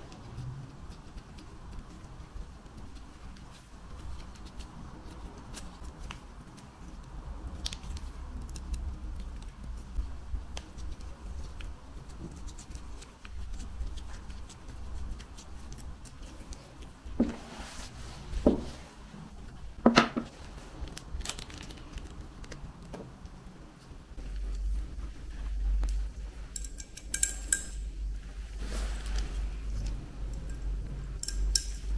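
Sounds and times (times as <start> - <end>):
rustle: 28.0 - 30.5.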